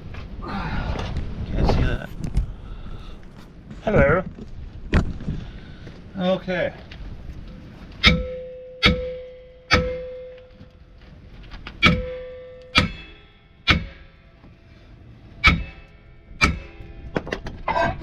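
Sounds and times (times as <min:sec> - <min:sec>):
hammer striking metal brake drum: 0:08.0 - 0:10.7, 0:11.8 - 0:14.2, 0:15.4 - 0:17.4
metal drum ringing: 0:08.0 - 0:10.7, 0:11.8 - 0:14.3, 0:15.4 - 0:17.7.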